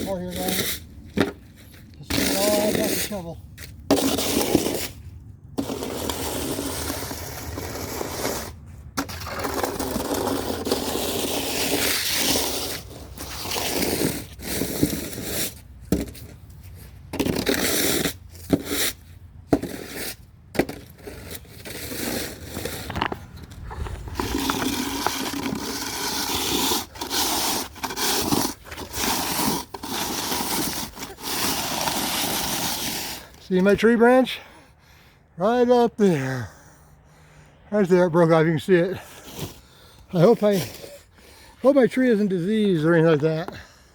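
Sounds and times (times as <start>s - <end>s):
snow shovel scraping pavement: 0.0s - 34.6s, 37.8s - 43.8s.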